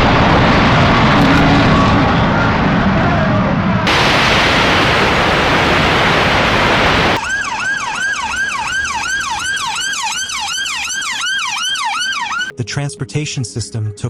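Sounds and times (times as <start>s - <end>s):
loud even rushing noise: 0.0s - 7.2s
emergency siren yelping: 3.9s - 12.5s.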